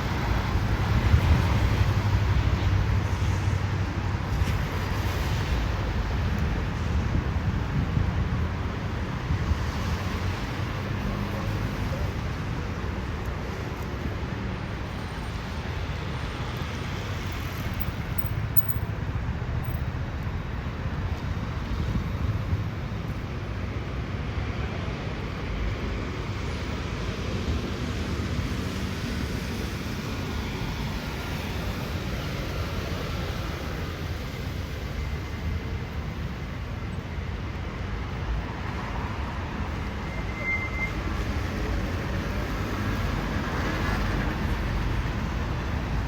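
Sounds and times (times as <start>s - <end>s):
wind rumble on microphone: 0.0s - 18.3s, 19.1s - 26.0s
traffic passing: 0.0s - 46.0s.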